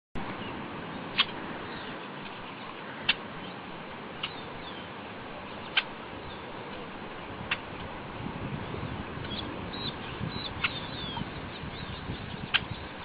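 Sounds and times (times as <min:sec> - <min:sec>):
bird chirping: 0:04.2 - 0:04.9, 0:05.5 - 0:06.5, 0:08.6 - 0:13.0.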